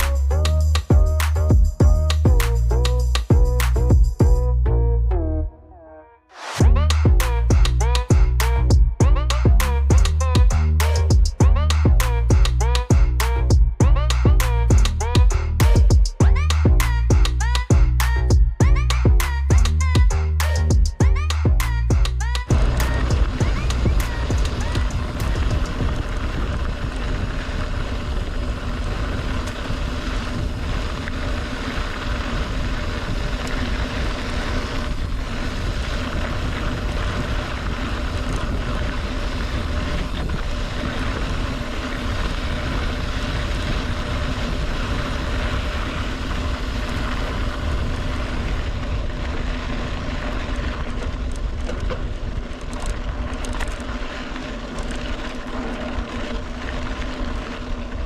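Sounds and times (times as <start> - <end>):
wind buffeting microphone: 20.8 - 58.0.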